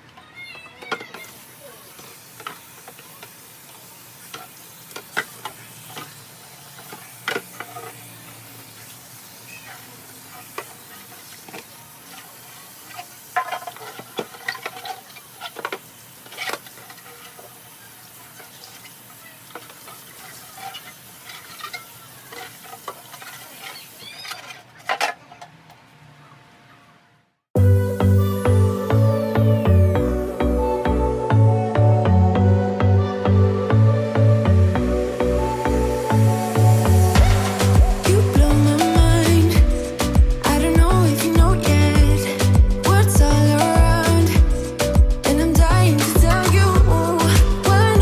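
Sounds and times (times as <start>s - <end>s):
steady hiss: 0.8s - 24.0s, 32.6s - 48.0s
containers clicking and clinking: 10.4s - 25.8s.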